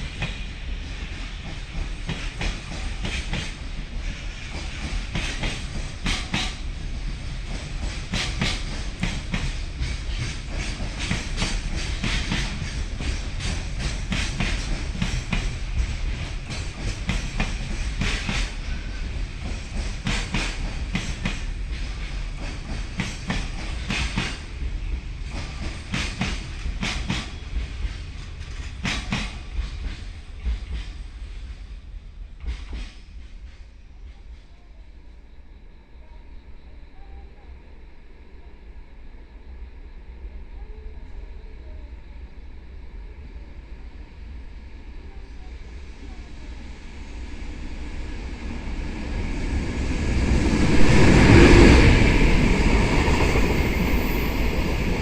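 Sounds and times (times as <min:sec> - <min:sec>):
train wheels clacking: 0:00.0 - 0:31.7, 0:32.4 - 0:34.5
freight train rumble: 0:00.0 - 0:55.0.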